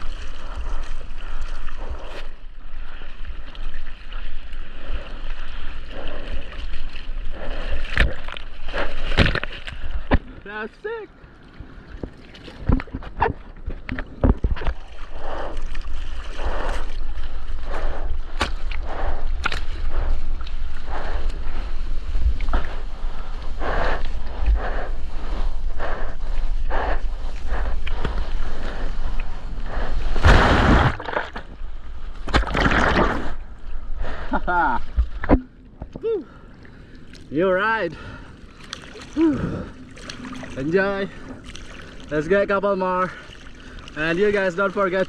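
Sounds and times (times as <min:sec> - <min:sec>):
water whooshes: 0:00.0 - 0:35.7, 0:37.0 - 0:45.0
seawater splashing and sloshing: 0:00.0 - 0:45.0
sharp knocks of water: 0:11.9 - 0:15.0.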